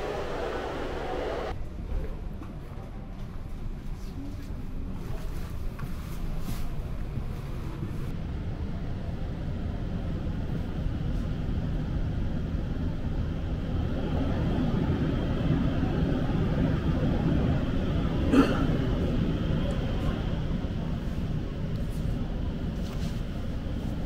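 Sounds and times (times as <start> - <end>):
train interior rumble: 0.0 - 24.0.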